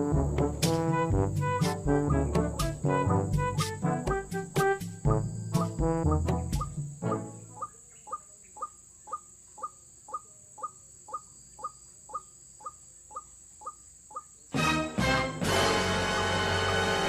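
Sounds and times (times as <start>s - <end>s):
loud music: 0.0s - 7.3s, 14.6s - 17.0s
waterhen calling: 6.4s - 14.4s.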